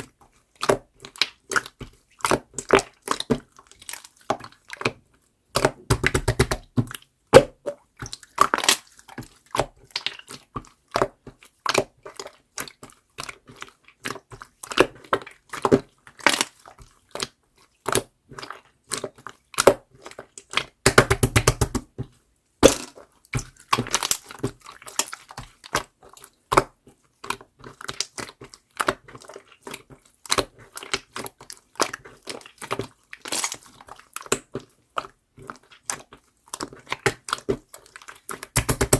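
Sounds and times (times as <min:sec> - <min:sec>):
slime clicking and popping: 0:05.6 - 0:06.8, 0:20.6 - 0:21.9, 0:22.6 - 0:24.4, 0:38.3 - 0:38.9.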